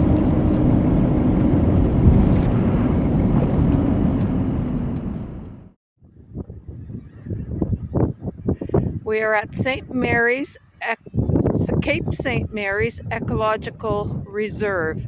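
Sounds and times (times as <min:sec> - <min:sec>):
truck engine and road rumble: 0:00.0 - 0:05.8
wind buffeting microphone: 0:00.0 - 0:15.0.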